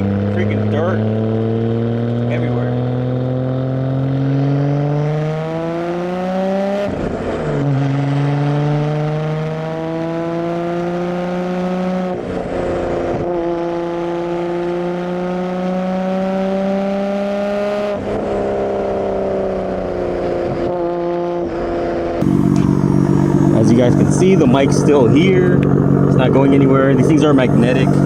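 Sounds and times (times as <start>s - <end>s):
car exhaust accelerating: 0.0s - 21.2s, 22.0s - 28.0s
rough loud engine: 22.2s - 28.0s.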